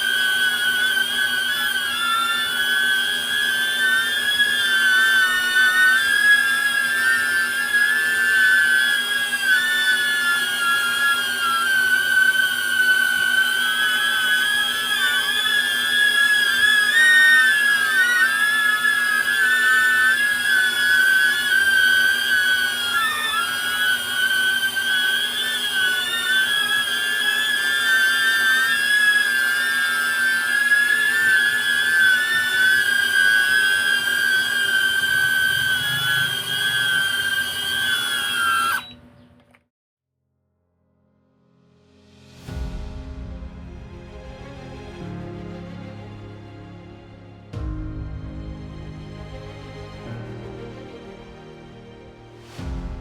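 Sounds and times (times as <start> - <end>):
drone propellers whining: 0.0 - 39.6.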